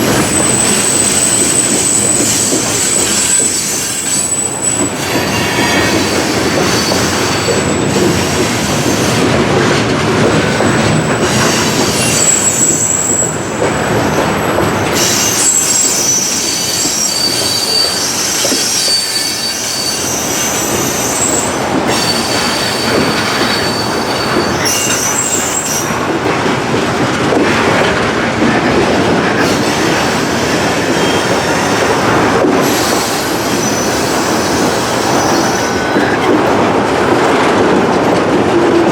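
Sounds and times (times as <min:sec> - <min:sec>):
freight train wheels rumbling: 0:00.0 - 0:38.9
high-pitched wheel squeal: 0:15.0 - 0:25.9.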